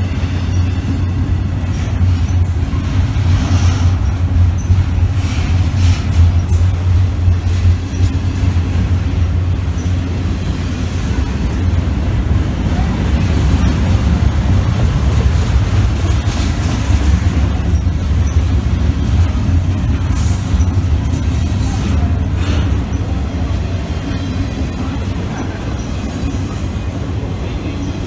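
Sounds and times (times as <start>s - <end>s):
freight train wheels rumbling: 0.0s - 28.0s.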